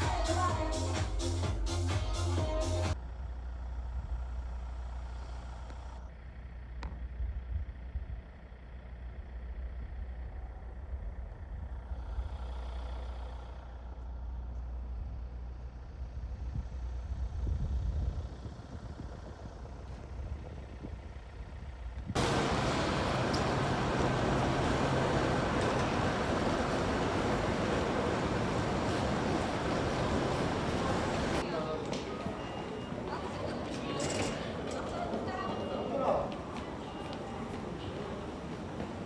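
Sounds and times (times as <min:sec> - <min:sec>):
vehicle engine rumbling: 0:00.0 - 0:35.5
loud rushing noise: 0:22.2 - 0:31.4.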